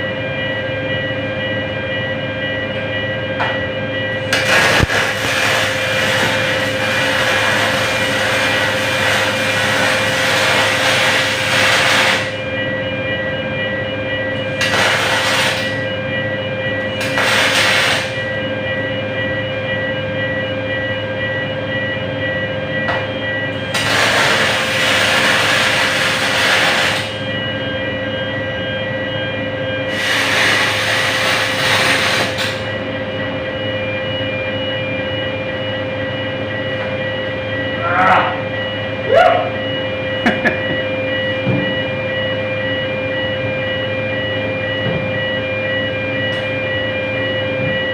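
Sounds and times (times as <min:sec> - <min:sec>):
constant high whine: 0:00.0 - 0:47.9
steady machine hum: 0:00.0 - 0:47.9
welding arc hissing and crackling: 0:04.3 - 0:12.4, 0:14.6 - 0:15.8, 0:17.0 - 0:18.2, 0:23.7 - 0:27.2, 0:29.9 - 0:32.7.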